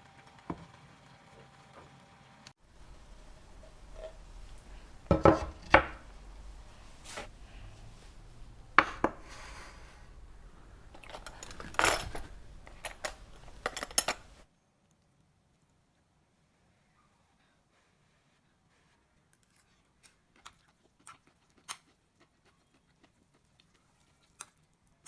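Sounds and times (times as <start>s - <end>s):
dishes and utensils clattering: 11.0s - 14.4s.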